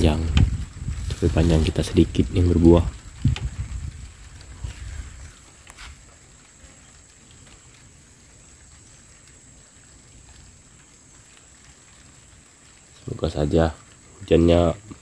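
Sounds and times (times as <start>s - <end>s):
raindrops pattering: 0.0s - 15.0s.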